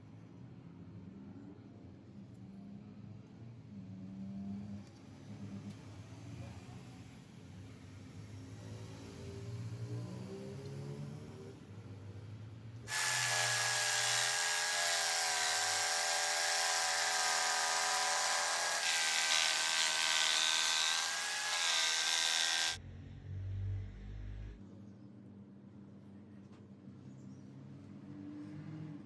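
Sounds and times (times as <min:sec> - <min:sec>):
power tool whining: 0:12.9 - 0:22.8.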